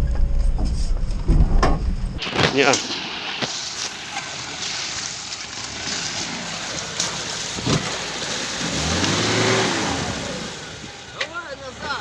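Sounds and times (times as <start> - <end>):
steady rushing noise: 2.2 - 11.1.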